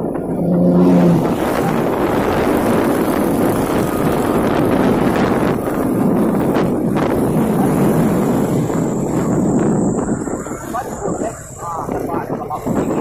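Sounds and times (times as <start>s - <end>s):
heavy truck engines rumbling: 0.0s - 13.0s
wind buffeting microphone: 0.0s - 13.0s.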